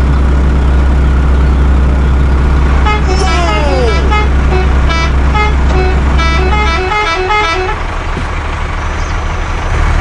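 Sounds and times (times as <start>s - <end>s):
low engine hum: 0.0s - 10.0s
horn-like notes tune: 2.8s - 7.8s.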